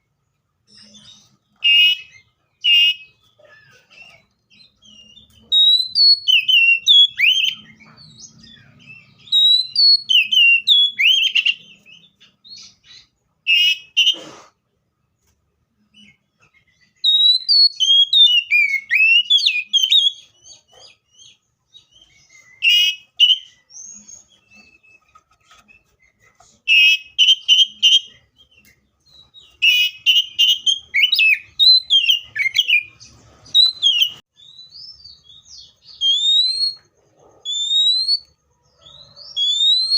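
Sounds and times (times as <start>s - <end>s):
bird singing whistled phrases: 4.6s - 7.8s, 8.7s - 14.1s, 16.9s - 20.3s, 21.2s - 25.0s, 26.7s - 32.9s, 33.6s - 36.8s, 37.4s - 38.4s, 39.0s - 39.9s.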